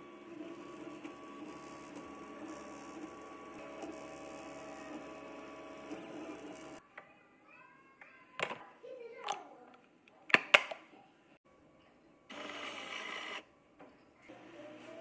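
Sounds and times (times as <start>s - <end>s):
three d printer motors whining: 0.0s - 6.8s, 12.3s - 13.4s.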